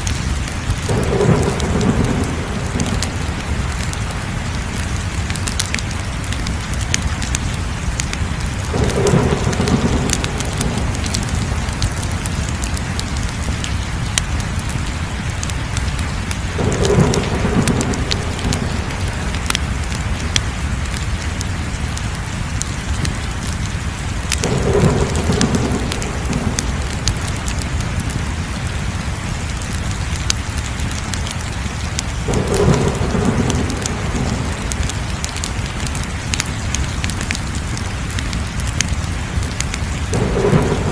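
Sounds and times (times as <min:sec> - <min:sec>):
fire crackling and popping: 0:00.0 - 0:40.9.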